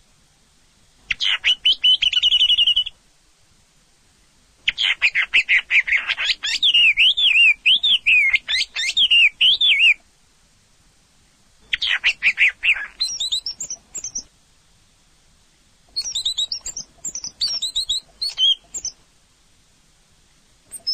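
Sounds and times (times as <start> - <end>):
bird singing chirps and whistles: 1.1 - 3.0, 4.7 - 10.0, 11.7 - 14.3, 15.9 - 19.0.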